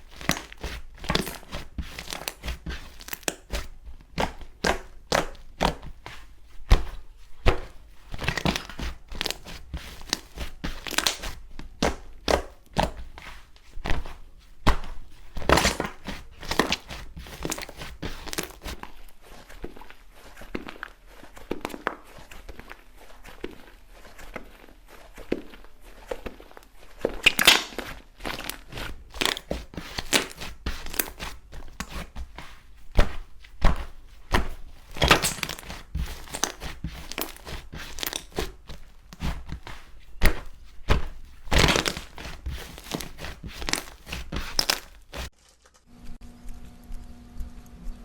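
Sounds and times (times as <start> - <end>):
slime crackling and popping: 0.0 - 6.0, 6.6 - 13.2, 13.9 - 18.8, 27.1 - 45.8.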